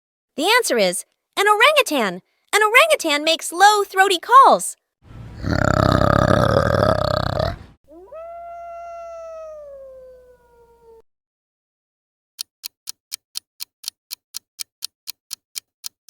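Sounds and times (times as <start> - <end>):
coyote howling: 7.9 - 11.0
countdown clock ticking: 12.4 - 16.0.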